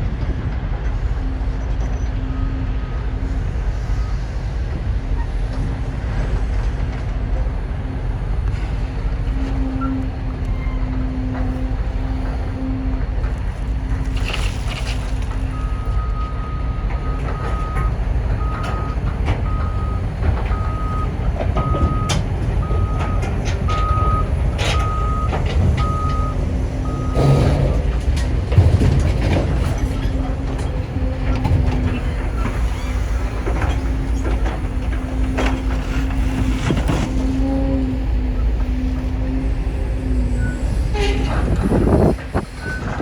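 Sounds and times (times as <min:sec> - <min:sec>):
diesel machinery running: 0:00.0 - 0:43.0
machinery clanks and knocks: 0:00.0 - 0:43.0
backup alarm beeping: 0:15.6 - 0:28.0.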